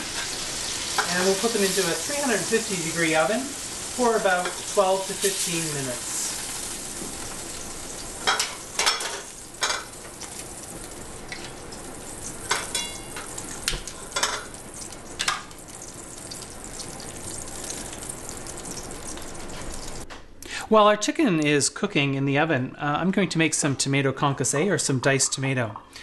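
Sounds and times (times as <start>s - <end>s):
meat sizzling in a frying pan: 0.0s - 20.0s.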